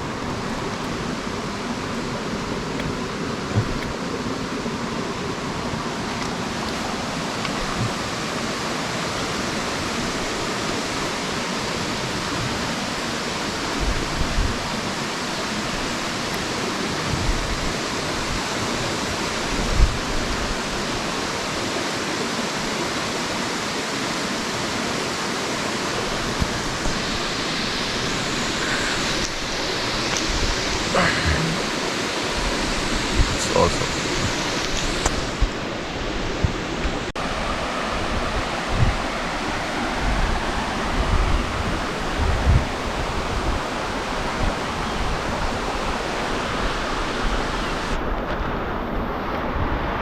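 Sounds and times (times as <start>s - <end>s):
soft low thumps: 2.8s - 4.0s.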